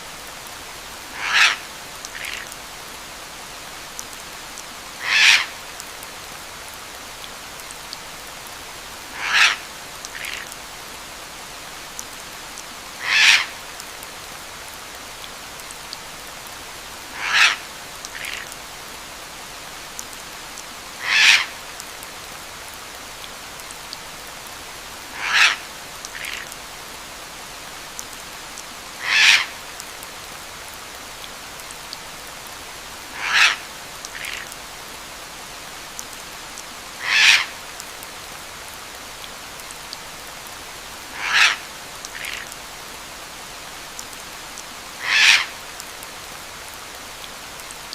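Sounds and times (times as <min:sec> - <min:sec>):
steady rain hiss: 0:00.0 - 0:47.9
bird call: 0:28.4 - 0:30.2, 0:37.0 - 0:38.1.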